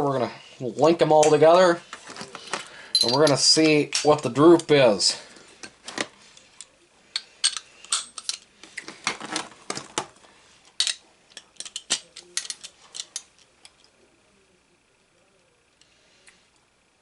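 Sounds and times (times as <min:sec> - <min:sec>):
metal sockets clinking: 0:03.0 - 0:03.4.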